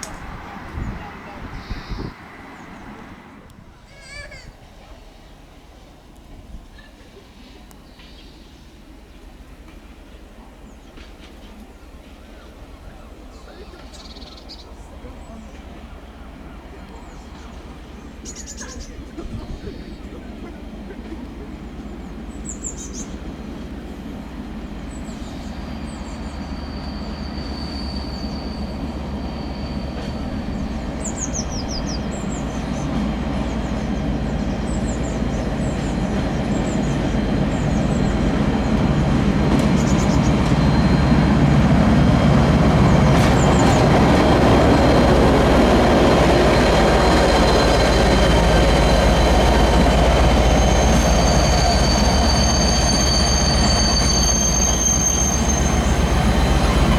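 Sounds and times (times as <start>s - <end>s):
train passing: 0.0s - 56.9s
small birds chirping: 0.1s - 3.1s, 12.9s - 41.5s
high wheel squeal: 25.0s - 33.0s, 35.6s - 56.9s.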